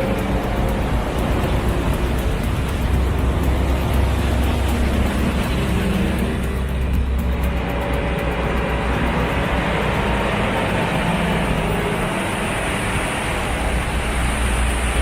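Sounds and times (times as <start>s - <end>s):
heavy truck engine droning: 0.0s - 15.0s.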